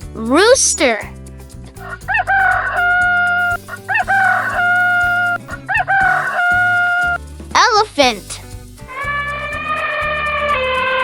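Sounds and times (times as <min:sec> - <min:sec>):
soft background music: 0:00.0 - 0:11.0
rooster crowing: 0:03.9 - 0:07.2.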